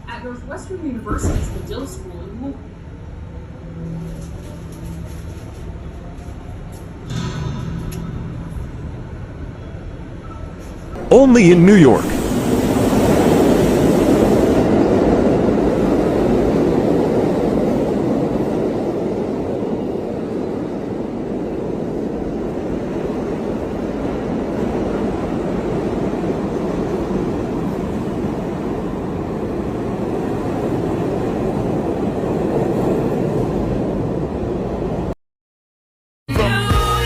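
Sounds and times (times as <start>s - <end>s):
subway train running: 0.0s - 35.1s
music: 36.3s - 37.0s.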